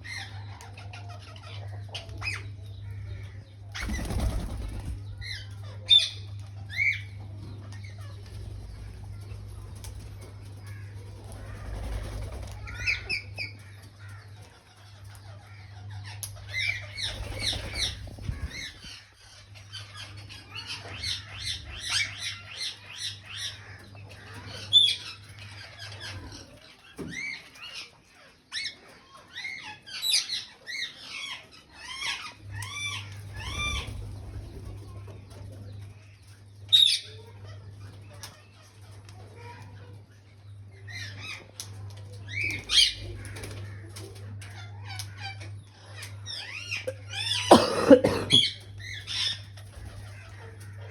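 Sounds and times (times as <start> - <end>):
low steady hum: 0.0 - 26.7
parakeets squawking and chirping: 7.9 - 14.2, 14.9 - 26.6, 27.2 - 34.8, 42.3 - 43.8, 44.5 - 50.9.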